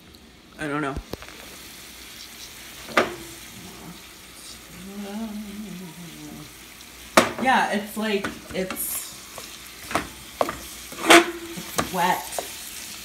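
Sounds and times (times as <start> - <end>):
vegetables sizzling in oil: 0.0 - 13.0
person humming: 3.8 - 6.6.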